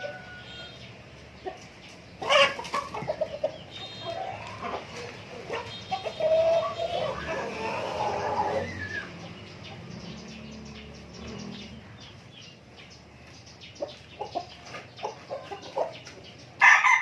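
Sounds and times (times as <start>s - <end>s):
chickens clucking: 0.0s - 17.0s
chicken loud squawk: 5.5s - 9.1s.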